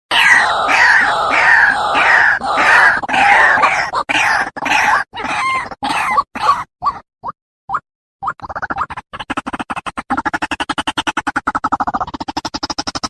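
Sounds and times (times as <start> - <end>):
bird harsh screeching calls: 0.1 - 6.7.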